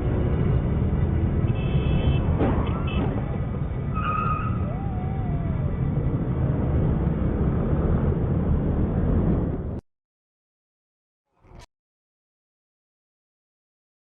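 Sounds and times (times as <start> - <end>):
car engine and tyre noise: 0.0 - 9.8.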